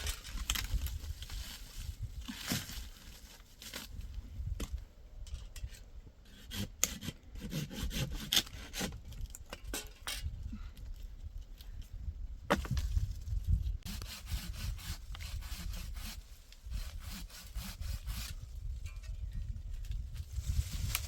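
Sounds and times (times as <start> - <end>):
hand saw cutting wood: 6.2 - 9.0, 13.8 - 18.4.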